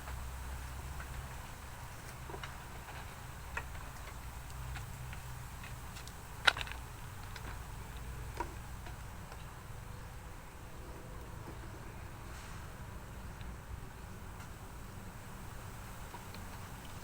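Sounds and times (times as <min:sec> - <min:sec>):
light clicks and ticks: 0:02.0 - 0:09.6.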